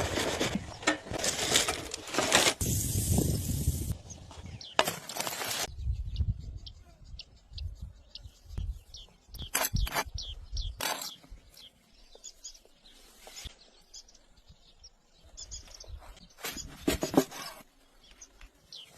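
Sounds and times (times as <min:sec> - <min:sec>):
birds chirping: 0:03.9 - 0:04.8, 0:05.6 - 0:18.9.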